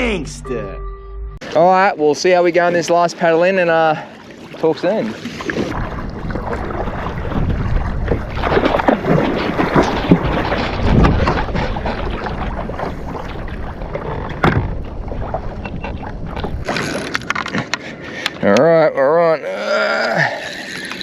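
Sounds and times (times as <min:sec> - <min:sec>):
water splashing around paddle: 0:04.0 - 0:18.3
wind buffeting microphone: 0:05.6 - 0:16.7.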